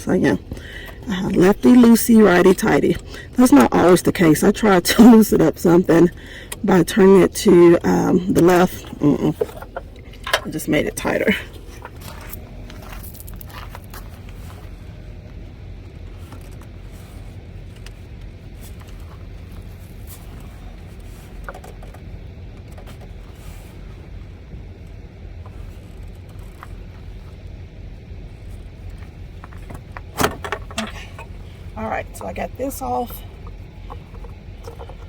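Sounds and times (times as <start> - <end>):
low mechanical hum: 0.0 - 35.0
hand tools clicking and scraping: 29.0 - 31.4.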